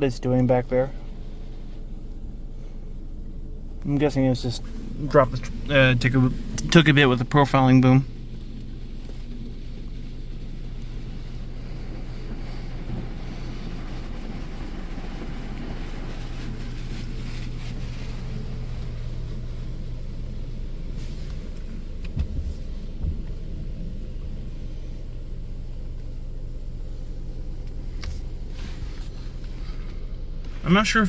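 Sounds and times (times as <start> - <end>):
car wash machine hum: 0.0 - 31.0
water spray hissing on car: 3.2 - 31.0
short thumps: 22.0 - 23.5.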